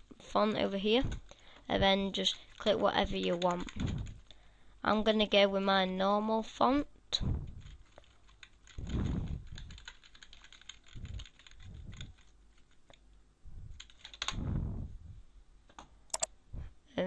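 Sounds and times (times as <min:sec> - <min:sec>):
keyboard typing and clicking: 0:02.5 - 0:04.4, 0:07.6 - 0:13.0, 0:13.8 - 0:14.4, 0:16.1 - 0:16.3
low bumps: 0:08.8 - 0:09.8, 0:13.4 - 0:15.3.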